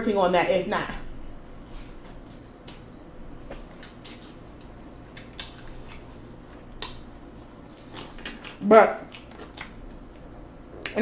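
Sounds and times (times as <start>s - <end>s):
person chewing food: 2.0s - 11.0s
mouth smacks and clicks: 3.7s - 6.1s, 6.8s - 7.0s.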